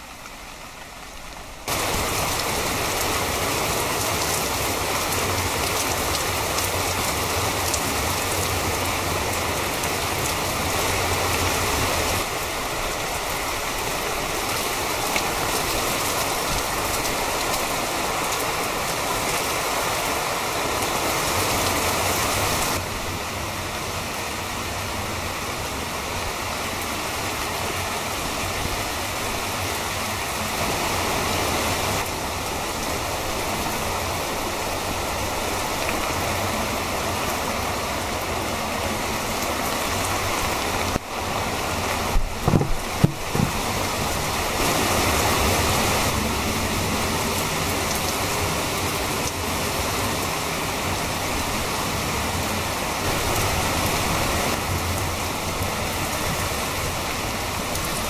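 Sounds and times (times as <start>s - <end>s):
rain falling on leaves and paving: 0.0s - 58.0s.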